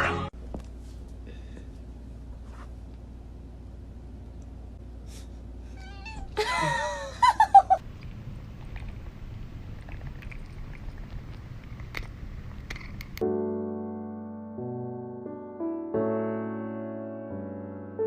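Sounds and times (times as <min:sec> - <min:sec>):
cat meowing: 0:05.7 - 0:06.4.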